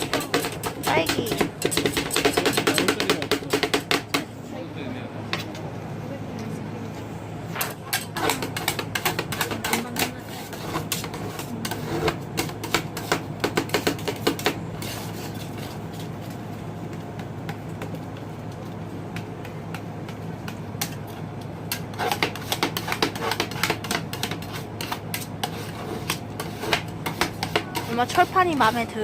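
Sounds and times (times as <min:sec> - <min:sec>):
metal spatulas chopping on steel: 0:00.0 - 0:04.3, 0:07.6 - 0:15.5, 0:21.7 - 0:28.8
steady low hum: 0:00.0 - 0:29.0.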